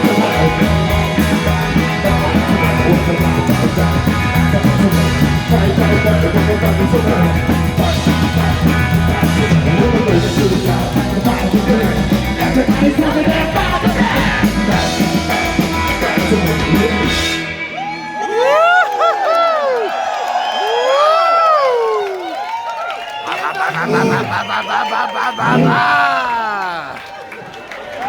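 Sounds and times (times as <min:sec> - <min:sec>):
person singing: 0:00.0 - 0:17.2, 0:23.3 - 0:27.0
rock band playing: 0:00.0 - 0:17.9.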